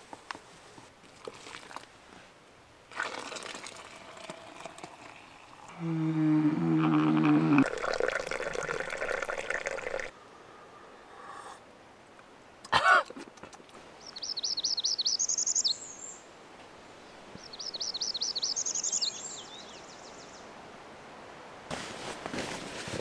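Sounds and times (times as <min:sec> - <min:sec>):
faint steady hiss: 0:00.0 - 0:23.0
songbird singing trills: 0:14.0 - 0:16.2, 0:17.4 - 0:20.5
rustling: 0:21.7 - 0:23.0.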